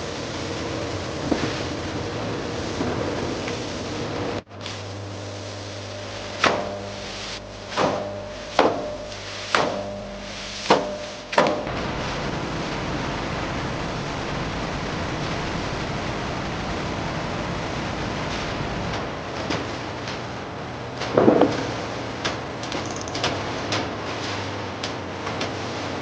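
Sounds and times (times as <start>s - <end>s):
machine hum: 0.0s - 26.0s
rushing machine noise: 0.0s - 26.0s
machine clanks: 22.6s - 23.9s.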